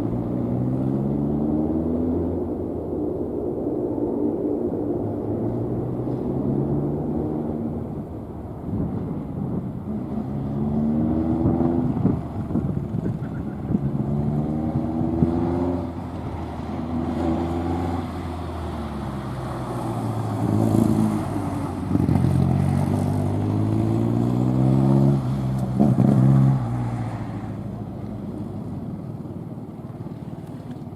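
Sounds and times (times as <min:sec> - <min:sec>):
car engine revving: 0:09.8 - 0:28.5.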